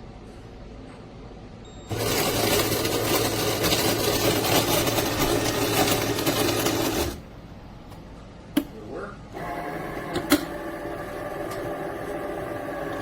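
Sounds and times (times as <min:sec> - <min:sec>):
burr grinder grinding coffee beans: 0:01.9 - 0:07.2, 0:09.4 - 0:13.0.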